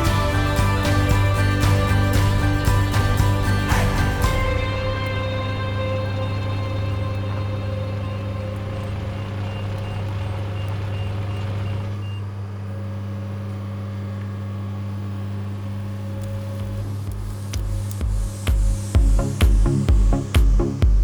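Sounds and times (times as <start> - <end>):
diesel engine running: 0.0 - 13.2.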